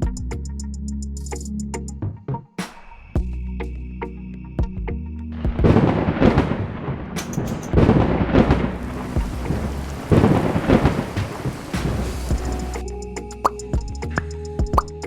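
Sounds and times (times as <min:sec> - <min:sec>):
rolling thunder: 0:05.6 - 0:12.8
heavy rain: 0:06.2 - 0:12.8.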